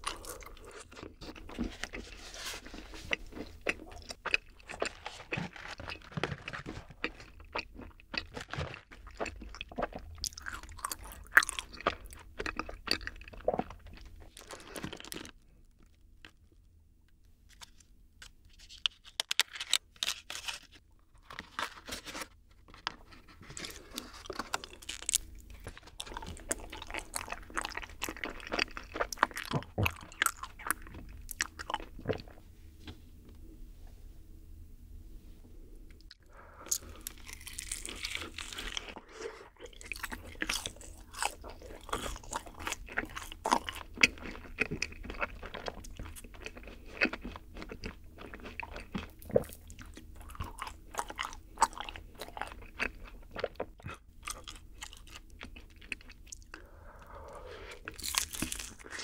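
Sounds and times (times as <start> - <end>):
wet crunchy chewing: 0.0 - 15.3, 23.0 - 32.4, 36.0 - 59.0
paper crinkling: 4.8 - 7.0, 18.5 - 25.7.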